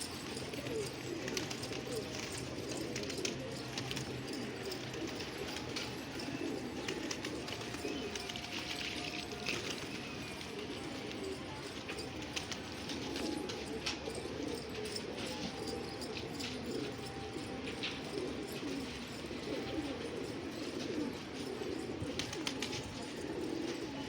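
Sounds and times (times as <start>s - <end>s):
pigeons cooing: 0.0s - 24.0s.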